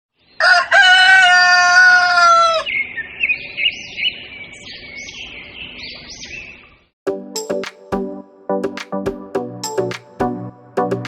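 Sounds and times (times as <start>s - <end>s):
rooster crowing: 0.4s - 2.7s
small birds chirping: 2.6s - 6.9s.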